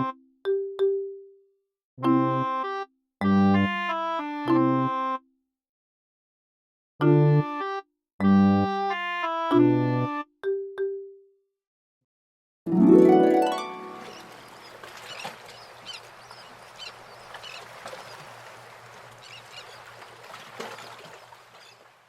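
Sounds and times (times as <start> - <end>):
harp glissando: 12.7 - 14.4.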